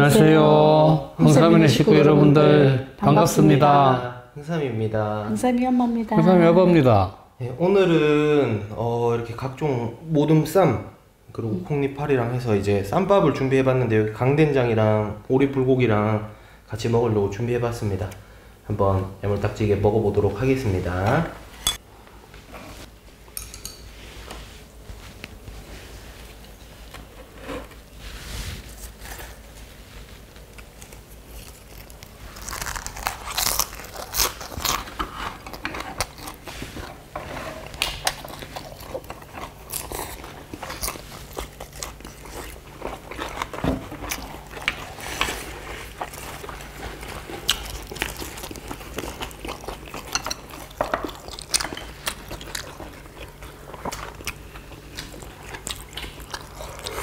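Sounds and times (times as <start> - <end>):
crunchy chewing of lettuce wraps: 28.7 - 57.0.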